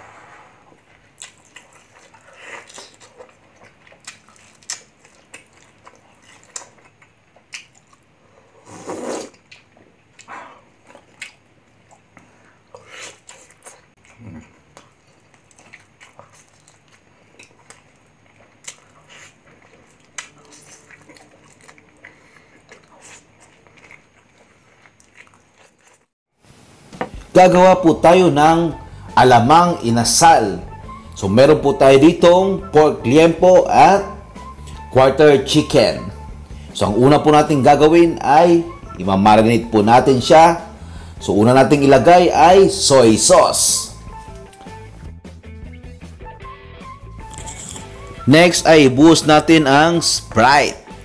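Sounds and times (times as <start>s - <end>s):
man chewing: 0.7s - 26.1s, 34.2s - 34.9s, 43.9s - 45.2s, 46.8s - 48.3s
lip smacks: 1.1s - 8.1s, 9.0s - 26.1s, 34.3s - 34.9s, 44.0s - 45.0s, 47.2s - 48.3s
short sharp mouth clicks: 47.2s - 48.0s.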